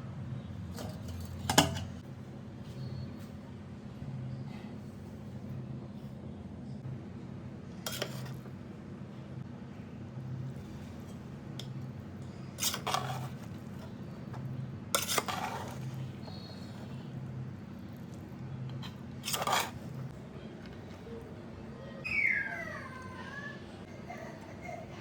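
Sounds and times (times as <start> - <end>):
metal utensils clattering on cookware: 0.7 - 2.0, 12.6 - 13.9, 14.9 - 16.0.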